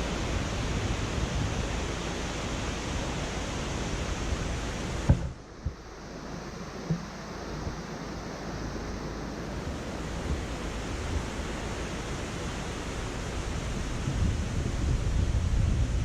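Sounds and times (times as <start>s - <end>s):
car tyre and wind noise: 0.0s - 16.0s
car bump: 5.1s - 5.4s.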